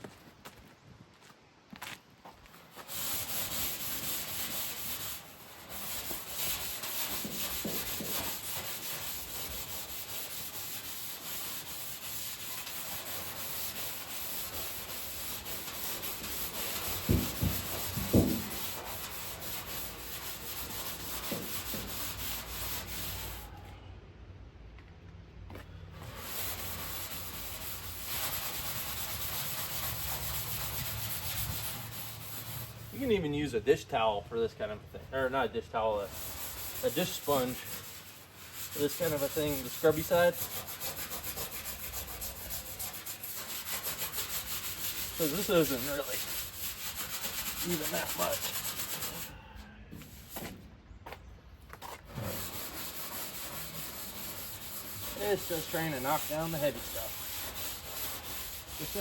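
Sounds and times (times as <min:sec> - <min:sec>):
scrubbing pad rasping on steel: 0:02.7 - 0:23.6, 0:25.9 - 0:33.3, 0:34.9 - 0:50.6, 0:51.8 - 0:59.0
sharp knocks: 0:17.0 - 0:18.6.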